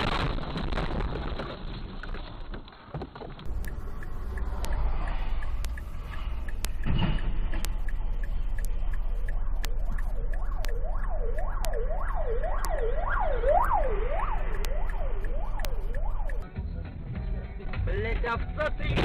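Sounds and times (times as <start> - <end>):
low drone: 3.4 - 16.5
regular ticking: 3.4 - 16.5
emergency siren yelping: 3.5 - 16.4.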